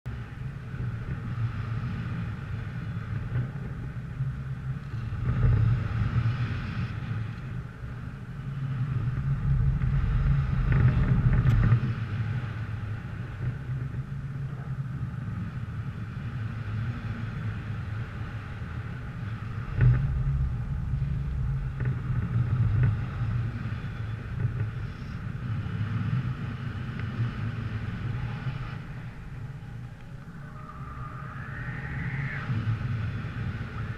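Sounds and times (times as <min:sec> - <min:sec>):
wind rumble on microphone: 0:00.0 - 0:33.9
vehicle engine running: 0:16.9 - 0:30.4.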